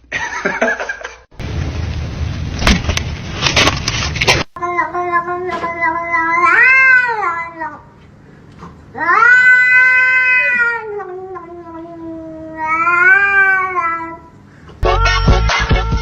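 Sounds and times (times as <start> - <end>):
cat yowling: 4.7 - 7.6, 9.0 - 14.2.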